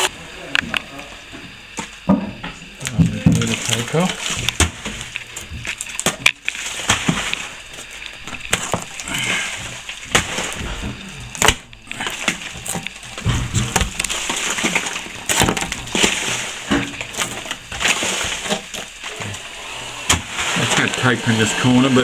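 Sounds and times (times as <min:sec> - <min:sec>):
plaster scraping: 0:12.0 - 0:22.0.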